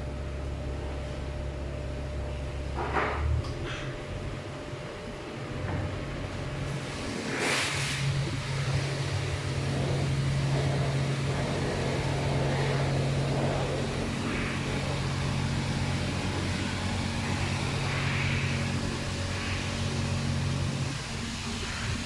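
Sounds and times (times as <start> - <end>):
car wash water rushing: 6.6 - 22.0.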